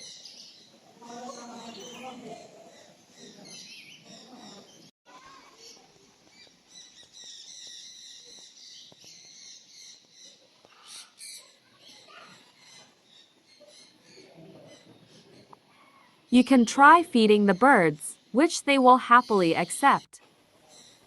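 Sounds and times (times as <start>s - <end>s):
birds chirping: 5.6s - 20.2s.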